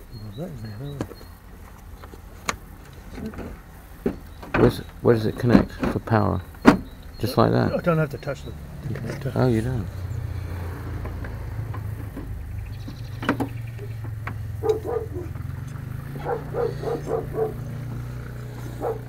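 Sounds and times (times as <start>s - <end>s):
dog yapping: 13.8s - 19.0s.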